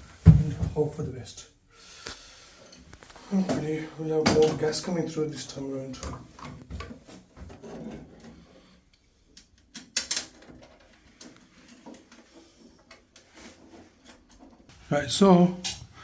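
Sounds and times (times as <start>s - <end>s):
tools and metal fittings clicking: 7.6s - 14.7s.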